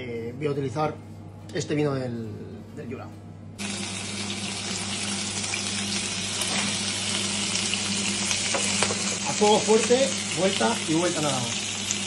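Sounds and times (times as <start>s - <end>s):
prawn heads sizzling in oil: 3.6s - 12.0s.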